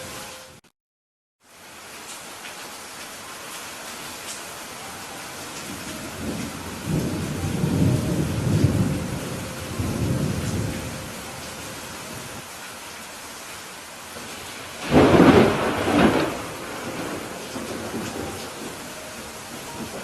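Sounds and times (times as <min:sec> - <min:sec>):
steady rain: 0:00.0 - 0:00.6, 0:01.4 - 0:20.0
rolling thunder: 0:05.7 - 0:12.4, 0:14.3 - 0:20.0
sharp thunderclap: 0:14.8 - 0:18.8.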